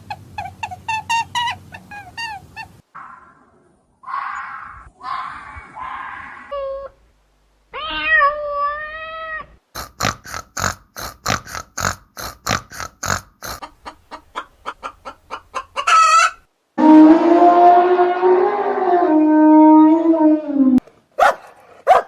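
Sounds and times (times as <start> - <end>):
animal calls: 0.0 - 7.0.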